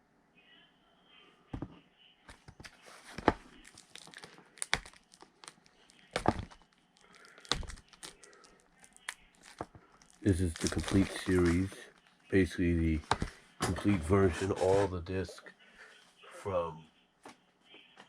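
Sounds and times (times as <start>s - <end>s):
packaging crinkling: 2.6s - 12.1s
knocks and taps on packaging: 6.1s - 6.6s, 7.4s - 8.1s.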